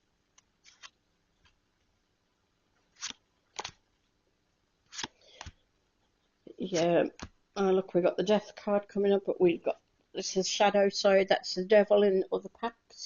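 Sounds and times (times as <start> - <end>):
cards snapping and tapping: 3.0 - 3.8.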